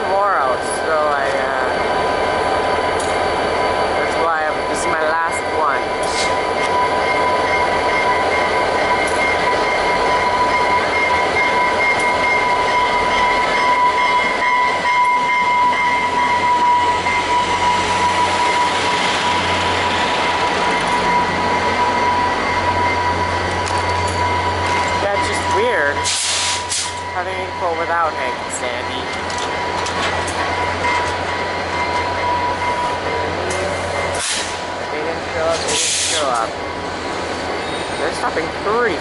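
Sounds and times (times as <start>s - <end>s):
diesel locomotive running: 0.0s - 39.0s
train wheels rumbling on rail: 0.0s - 39.0s
high-pitched wheel squeal: 37.6s - 38.1s.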